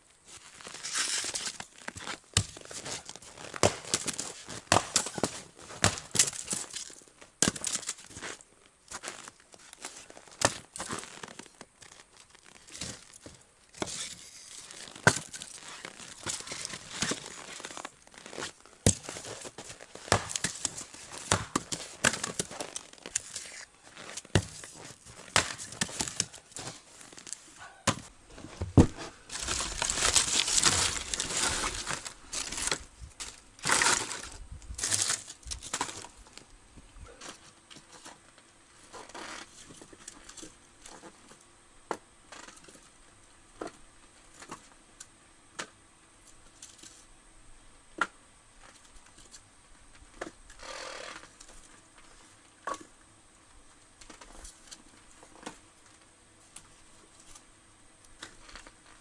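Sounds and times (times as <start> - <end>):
rustling and crinkling handling: 0.2 - 41.4.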